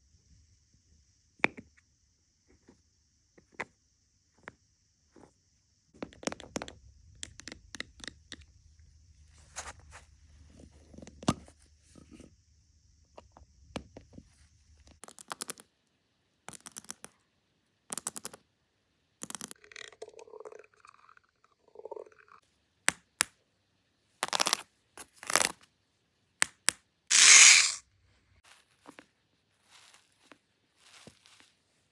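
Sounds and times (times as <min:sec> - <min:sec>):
loud rasping rip: 0:27.1 - 0:27.8.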